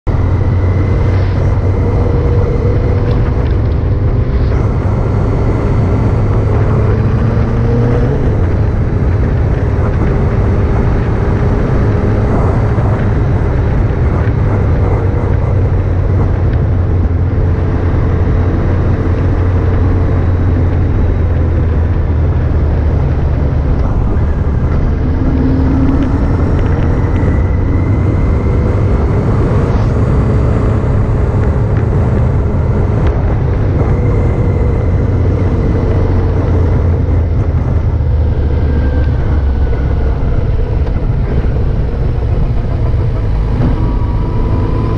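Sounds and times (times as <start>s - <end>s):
motorcycle engine running: 0.0s - 44.9s
wind and road noise: 0.0s - 44.9s.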